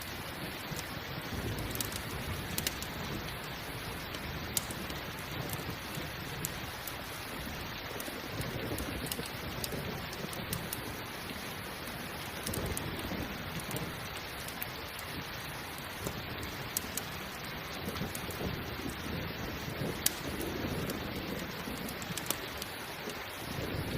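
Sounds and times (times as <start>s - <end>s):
campfire crackling and popping: 0.0s - 23.9s
low thunder rumbles: 0.0s - 23.9s
steady rain: 0.0s - 23.9s.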